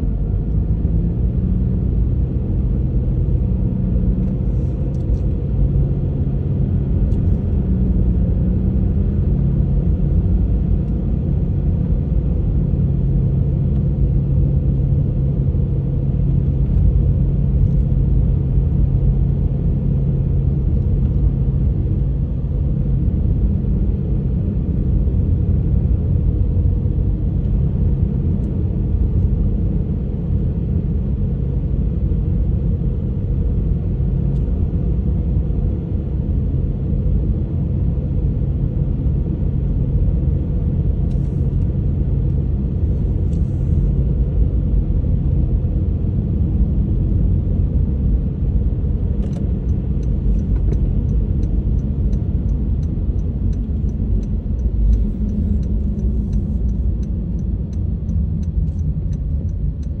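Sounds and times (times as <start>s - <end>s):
car road and engine rumble: 0.0s - 60.0s
low hum: 33.1s - 60.0s.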